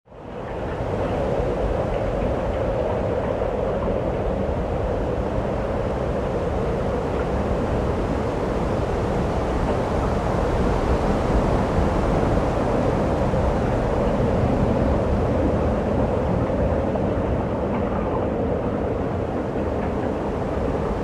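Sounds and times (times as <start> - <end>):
strong wind on microphone: 0.1 - 21.0.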